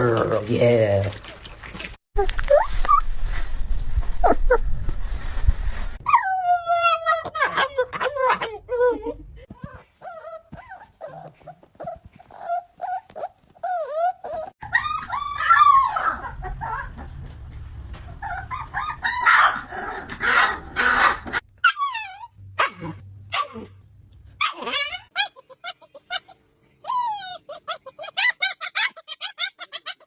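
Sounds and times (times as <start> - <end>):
dogs whining and yipping: 1.6 - 3.2, 6.0 - 17.2, 18.1 - 23.7, 24.4 - 30.0
dogs barking and yelping: 6.0 - 30.0.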